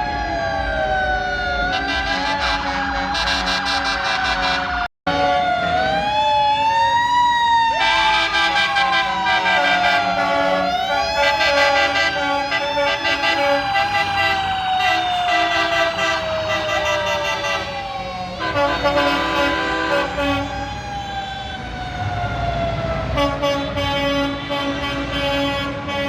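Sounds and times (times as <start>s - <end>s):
siren wailing: 0.0s - 25.0s
vehicle horns: 1.6s - 5.6s, 7.8s - 20.6s, 23.1s - 26.0s.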